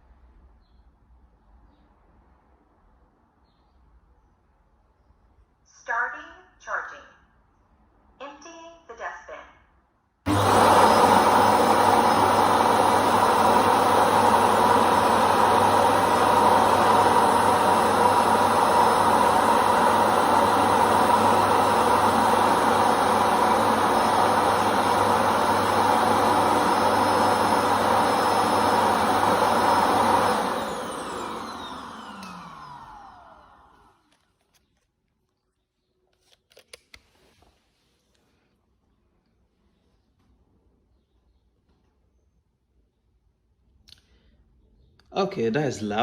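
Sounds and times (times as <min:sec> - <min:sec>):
suction motor running: 0:10.3 - 0:34.0.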